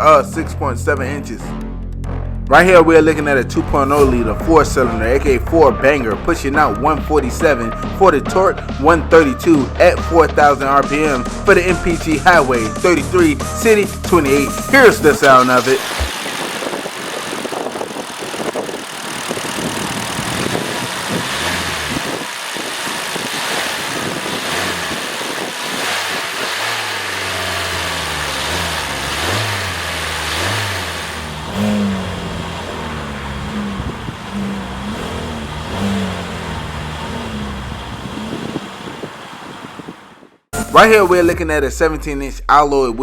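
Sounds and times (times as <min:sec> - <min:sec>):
car engine running and revving: 0:12.5 - 0:40.5.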